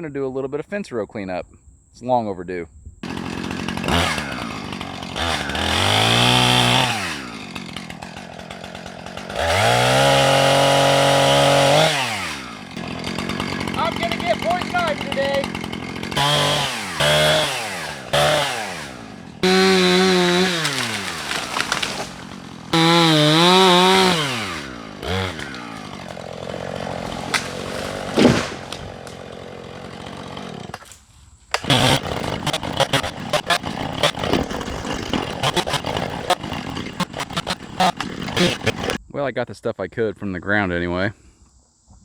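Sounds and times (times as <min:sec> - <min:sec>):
chainsaw revving and idling: 0:03.0 - 0:30.9, 0:31.5 - 0:39.0
crackling and clicking: 0:20.5 - 0:22.4, 0:30.7 - 0:39.0.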